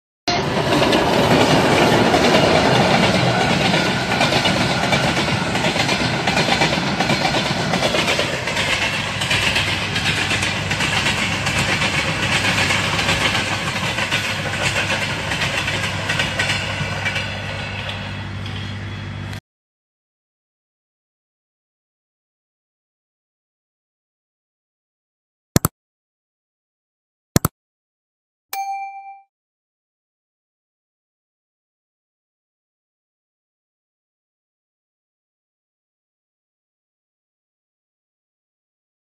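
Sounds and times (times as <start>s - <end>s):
freight train rumbling past: 0.3s - 19.4s.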